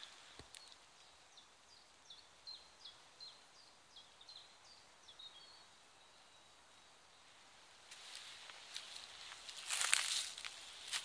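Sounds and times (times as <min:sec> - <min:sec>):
small bird chirping: 0:00.0 - 0:07.3.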